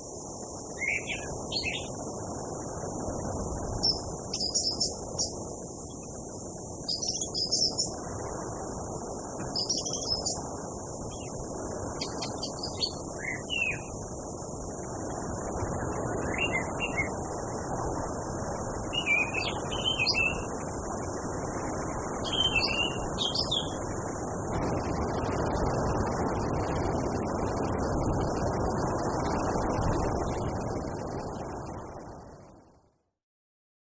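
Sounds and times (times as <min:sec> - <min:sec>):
low steady hiss: 0:00.0 - 0:33.1
high insect buzz: 0:03.8 - 0:08.1, 0:09.3 - 0:14.9
thrush singing whistled phrases: 0:22.2 - 0:23.8.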